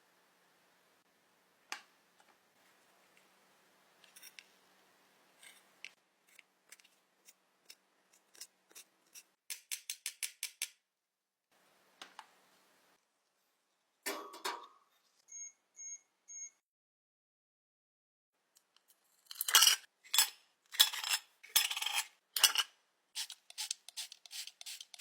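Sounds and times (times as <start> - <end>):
small tools clicking and tapping: 5.4 - 10.8.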